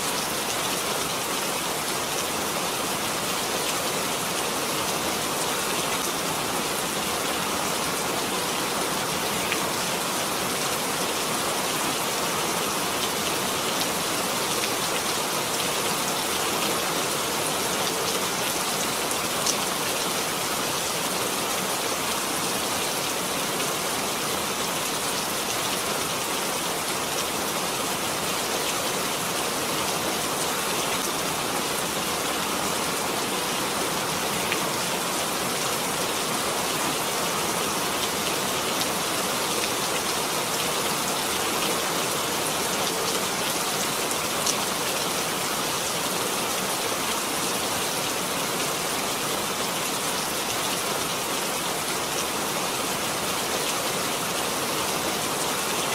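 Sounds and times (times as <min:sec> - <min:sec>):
steady rain falling: 0:00.0 - 0:55.9.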